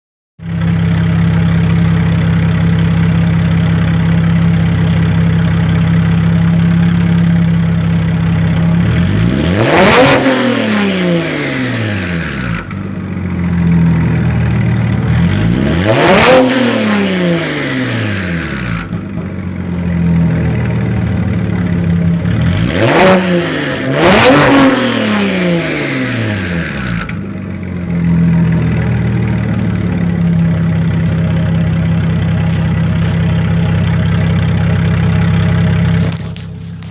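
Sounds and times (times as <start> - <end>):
car engine idling and revving: 0.4 - 36.9.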